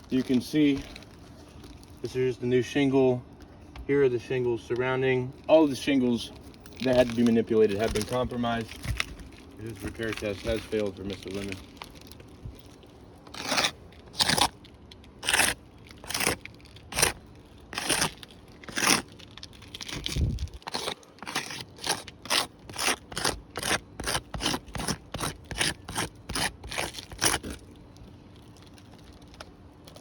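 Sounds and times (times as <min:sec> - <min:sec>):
footsteps crunching on roof shingles: 0:00.0 - 0:02.0, 0:05.7 - 0:14.5, 0:17.8 - 0:27.7.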